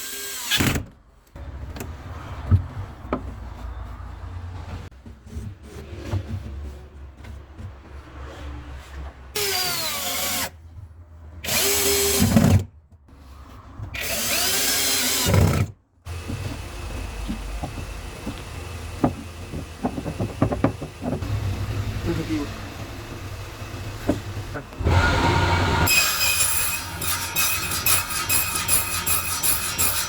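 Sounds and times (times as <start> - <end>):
handling knocks and clicks: 16.3 - 21.3.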